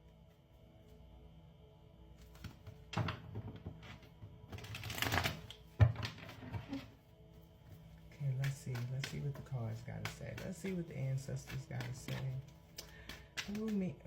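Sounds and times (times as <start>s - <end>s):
quiet background music: 0.0s - 14.0s
cards being shuffled: 4.6s - 5.6s, 7.7s - 14.0s
deck tapped on table: 8.4s - 13.9s.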